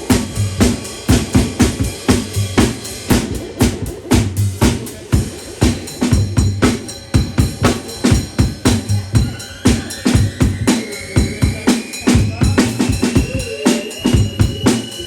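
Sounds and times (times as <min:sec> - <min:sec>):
deep bass line: 0:00.0 - 0:13.5
drum kit playing a beat: 0:00.0 - 0:15.0
rising high synth tone: 0:07.0 - 0:15.0.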